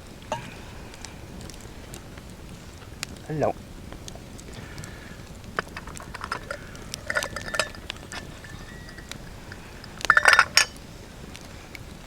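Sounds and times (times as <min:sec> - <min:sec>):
metal cookware clinking: 0:00.3 - 0:00.6, 0:05.6 - 0:10.9.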